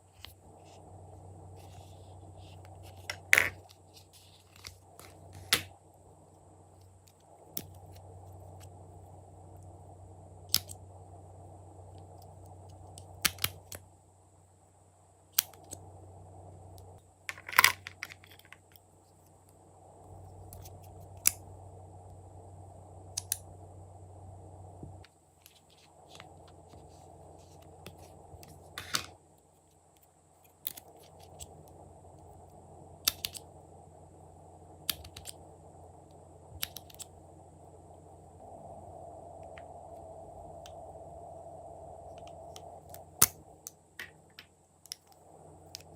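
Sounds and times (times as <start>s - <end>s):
low background hum: 0.0s - 45.9s.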